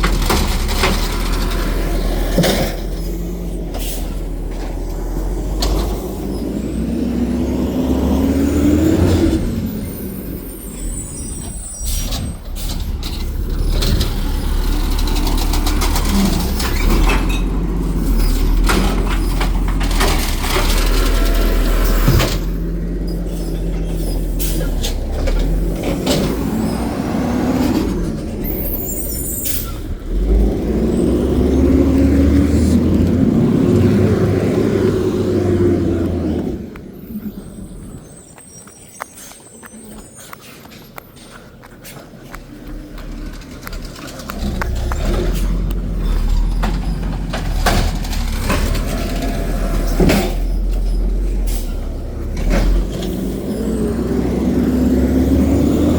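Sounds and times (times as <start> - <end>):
diesel engine revving: 0.0 - 55.9
air brakes hissing: 3.1 - 4.3, 9.6 - 13.6, 23.2 - 25.2, 50.3 - 52.0.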